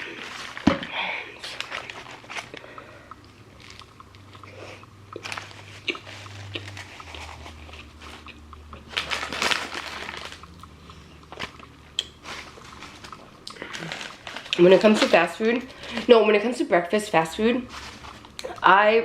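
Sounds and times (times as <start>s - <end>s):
chewing and crunching: 1.4s - 16.1s.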